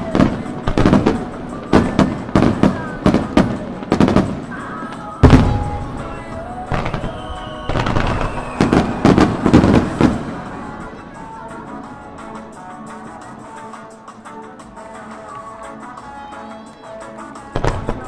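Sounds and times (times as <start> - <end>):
fireworks banging: 0.0 - 12.8, 17.4 - 18.0.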